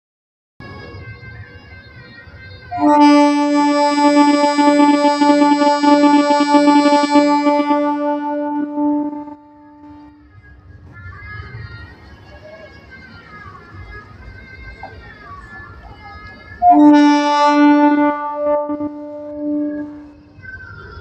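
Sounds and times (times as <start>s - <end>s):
train horn blast: 2.7s - 10.3s, 16.6s - 20.2s.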